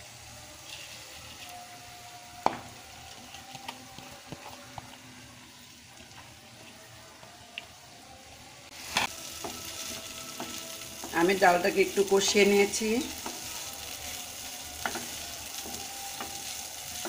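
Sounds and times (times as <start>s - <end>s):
lentils sizzling in a frying pan: 0.0s - 6.8s, 8.7s - 17.0s.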